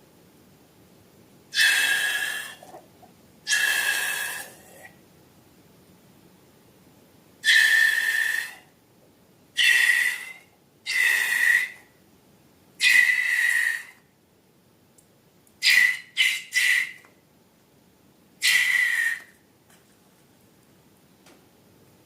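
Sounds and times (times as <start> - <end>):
air squealing from balloon neck: 1.6 - 2.8, 3.5 - 4.6, 9.6 - 11.8, 12.8 - 14.0, 15.6 - 17.0, 18.4 - 19.3.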